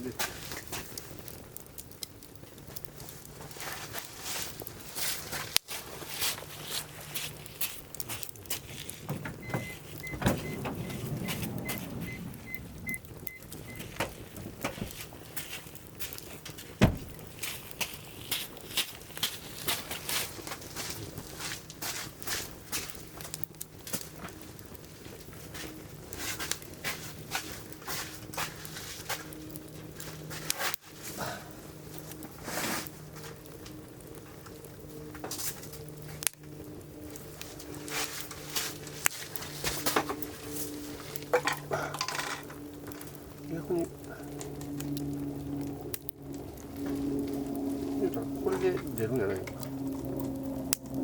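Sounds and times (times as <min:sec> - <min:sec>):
firewood crackling and popping: 0:00.0 - 0:51.0
low rumble: 0:09.0 - 0:15.3, 0:16.8 - 0:17.4
repeating high beep: 0:12.1 - 0:13.8.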